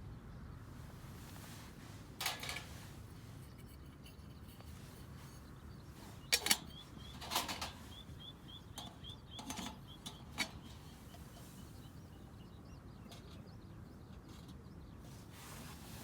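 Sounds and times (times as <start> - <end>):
small bird chirping: 2.6 - 16.0
sharp clicks and knocks: 6.2 - 7.8.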